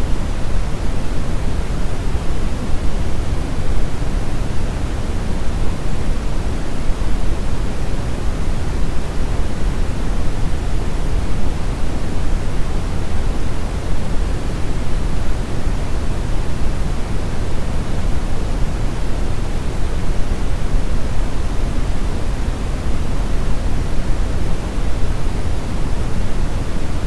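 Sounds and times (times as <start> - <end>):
brown noise hiss: 0.0 - 27.0.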